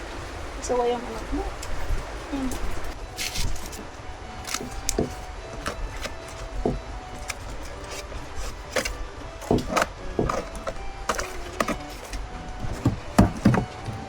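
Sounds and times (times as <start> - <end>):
objects knocking and clicking: 3.2 - 14.0.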